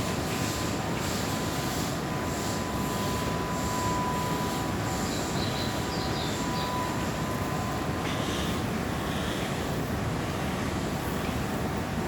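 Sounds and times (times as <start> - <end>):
electric train rumble: 0.0 - 12.0.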